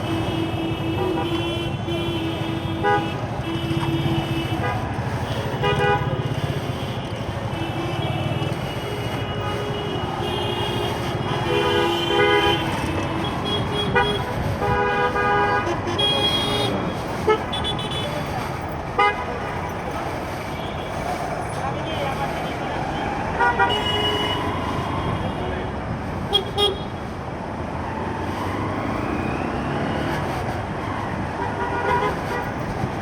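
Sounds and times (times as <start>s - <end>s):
vehicle horns honking: 0.0s - 19.8s, 23.4s - 25.3s, 26.3s - 27.0s, 31.4s - 32.8s
road noise: 0.0s - 33.0s.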